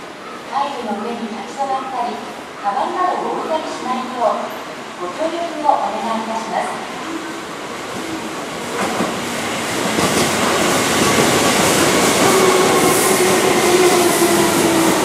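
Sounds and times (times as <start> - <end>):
faint train whine: 0.0 - 15.0
train wheels rumbling on rail: 7.4 - 15.0.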